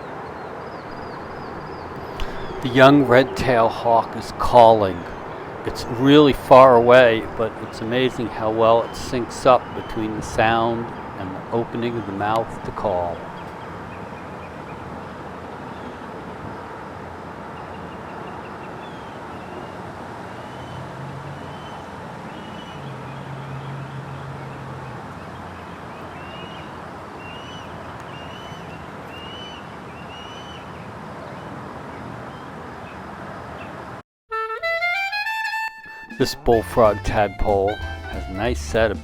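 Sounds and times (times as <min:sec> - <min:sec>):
distant hawk calling: 0:00.0 - 0:16.0, 0:21.4 - 0:24.2, 0:25.3 - 0:31.4.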